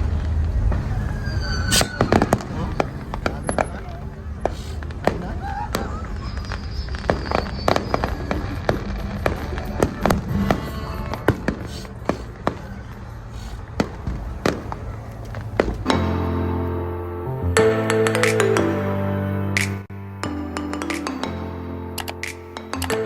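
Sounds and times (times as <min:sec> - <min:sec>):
fireworks bangs: 0:00.0 - 0:16.6
music: 0:15.9 - 0:23.0.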